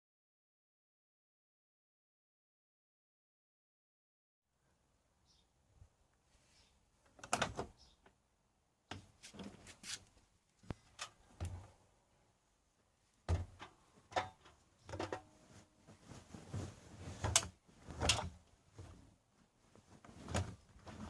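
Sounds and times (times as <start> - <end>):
washing machine knocks and clatters: 13.3 - 15.2.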